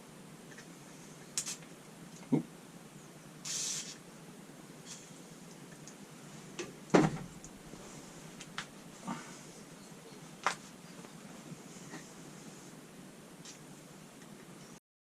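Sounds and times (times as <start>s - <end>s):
aerosol spray hiss: 3.4s - 4.0s.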